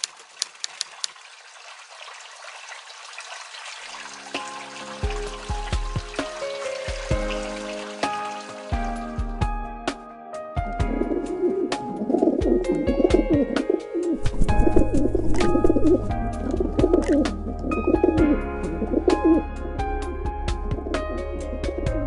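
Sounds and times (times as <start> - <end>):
pigeons cooing: 10.9 - 19.5, 20.7 - 22.0.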